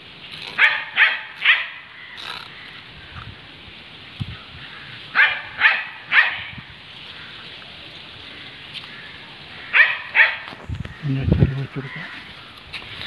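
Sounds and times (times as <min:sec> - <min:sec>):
dog barking: 0:00.6 - 0:01.8, 0:05.2 - 0:06.6, 0:09.7 - 0:10.5.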